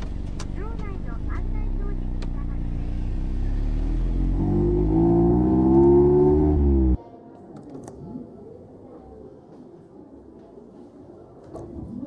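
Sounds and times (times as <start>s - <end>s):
car engine running: 0.0s - 7.0s.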